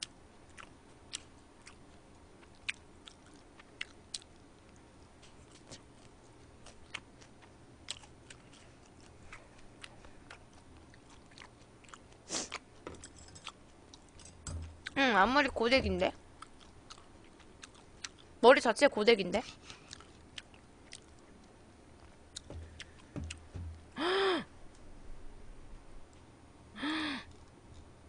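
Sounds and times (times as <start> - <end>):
soft chewing clicks and smacks: 0.0 - 15.0, 16.4 - 18.4, 19.4 - 23.4, 27.3 - 28.0.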